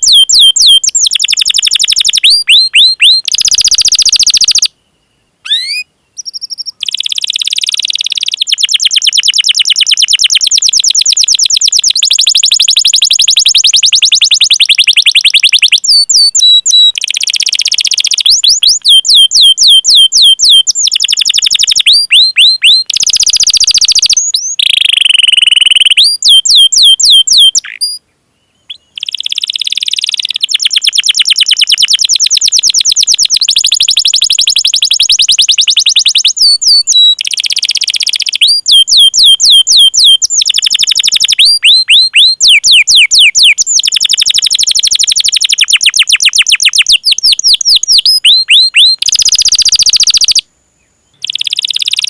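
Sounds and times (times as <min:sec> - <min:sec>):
canary singing: 0:00.0 - 0:04.8, 0:05.4 - 0:28.0, 0:28.6 - 0:50.4, 0:51.2 - 0:52.0.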